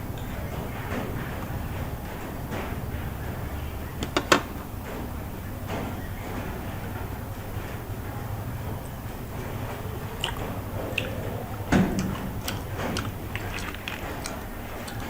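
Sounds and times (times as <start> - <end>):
chewing with wet clicks: 8.8 - 15.0.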